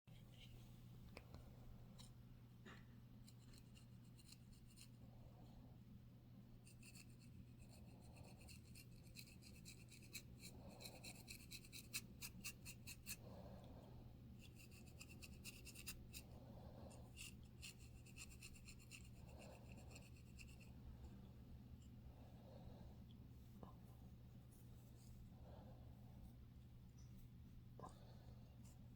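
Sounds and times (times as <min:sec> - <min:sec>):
scalp scratching: 0:06.7 - 0:13.2, 0:14.4 - 0:16.4, 0:17.0 - 0:20.7.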